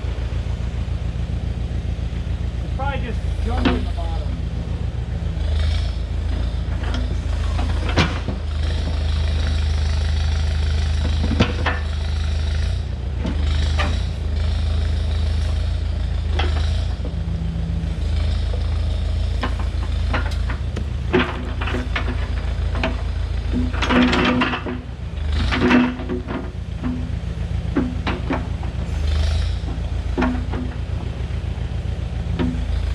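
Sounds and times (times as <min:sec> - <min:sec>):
digging machine engine running: 0:00.0 - 0:32.9
sharp metal knocks and clanks: 0:19.4 - 0:31.0, 0:32.3 - 0:32.9.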